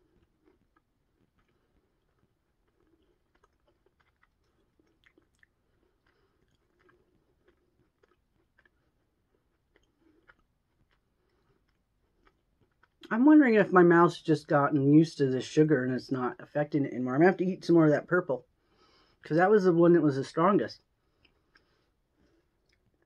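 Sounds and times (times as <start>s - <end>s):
wet chewing mouth clicks: 0.0s - 13.1s.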